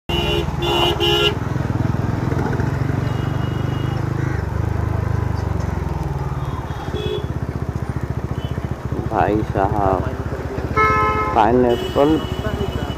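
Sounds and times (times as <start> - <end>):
vehicle horn tooting: 0.1 - 1.4, 3.0 - 4.2, 6.5 - 7.4, 8.2 - 8.9, 10.6 - 12.9
motorcycle engine running: 0.1 - 12.9.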